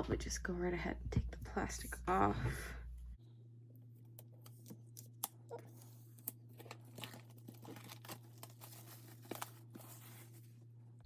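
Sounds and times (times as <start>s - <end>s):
faint steady hum: 0.0s - 11.0s
plastic shrink-wrap crinkling: 5.5s - 10.6s.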